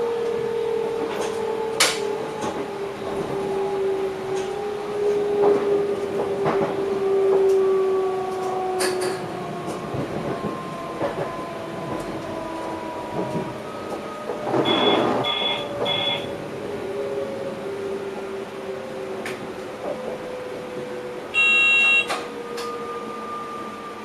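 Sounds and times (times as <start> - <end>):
electric train drive whine: 0.0 - 24.0
short electronic beeps: 14.7 - 16.3, 21.4 - 22.1.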